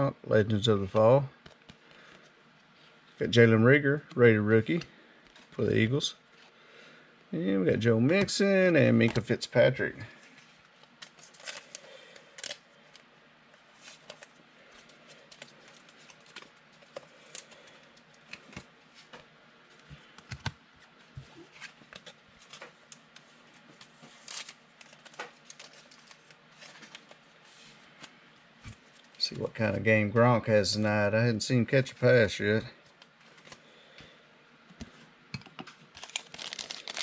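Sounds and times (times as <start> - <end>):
trading cards clicking and rustling: 13.8 - 20.6, 35.4 - 37.0.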